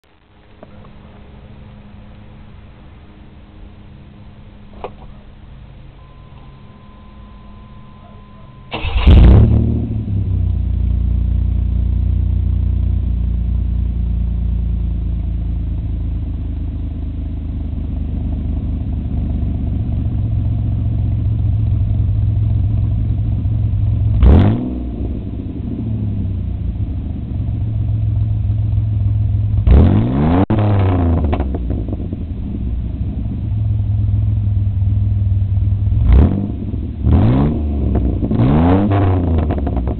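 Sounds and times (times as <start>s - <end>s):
car engine starting and idling: 0.1s - 39.9s
engine revving: 8.7s - 11.9s, 21.0s - 27.4s, 29.5s - 33.5s, 35.8s - 39.9s.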